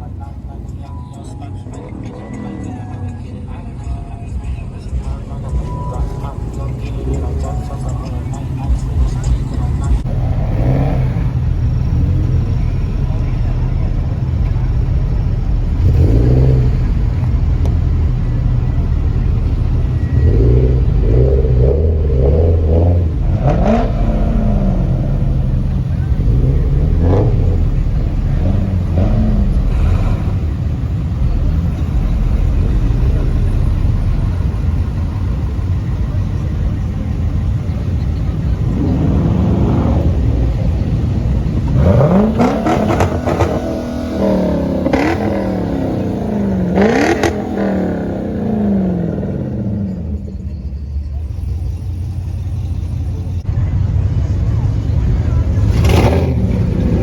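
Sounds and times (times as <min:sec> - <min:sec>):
car engines revving: 0:00.0 - 0:57.0
low exhaust rumble: 0:00.0 - 0:57.0.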